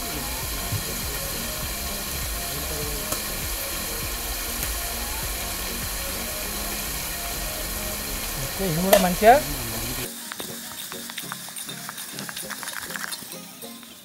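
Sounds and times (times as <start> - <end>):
food sizzling in a pot: 0.0 - 14.0.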